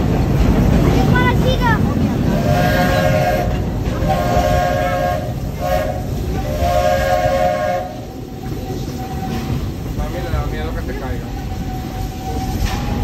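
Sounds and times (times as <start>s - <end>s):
train running rumble: 0.0s - 13.0s
steam locomotive chime whistle: 2.3s - 9.5s.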